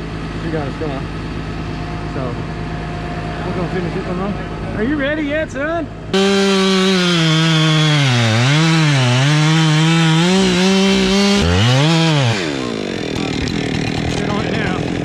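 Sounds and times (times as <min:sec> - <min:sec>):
chainsaw cutting wood: 0:06.2 - 0:15.0.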